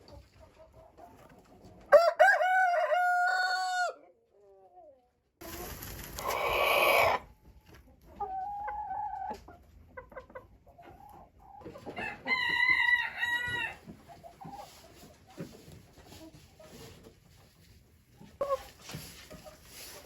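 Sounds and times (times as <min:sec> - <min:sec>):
chicken squawking: 0:06.2 - 0:07.3
chicken steady-pitched call: 0:06.2 - 0:07.3.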